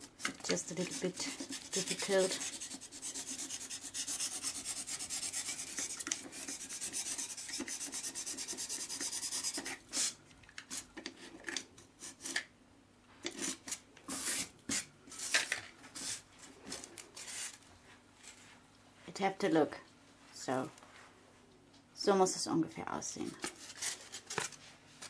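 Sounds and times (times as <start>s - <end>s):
knife sawing through styrofoam: 0.7s - 10.2s.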